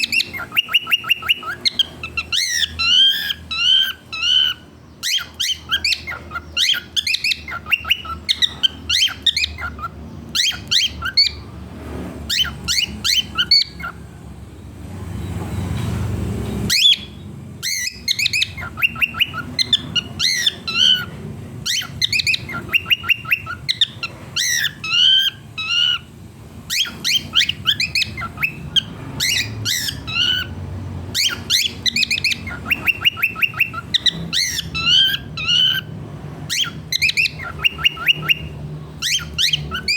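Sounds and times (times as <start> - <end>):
cockatiel chirping and squawking: 0.0 - 11.5, 12.2 - 14.0, 16.7 - 39.9.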